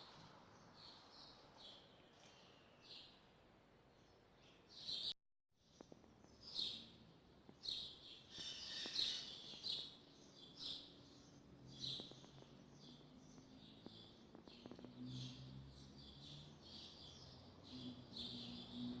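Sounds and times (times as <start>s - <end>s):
small birds chirping: 3.9s - 19.0s.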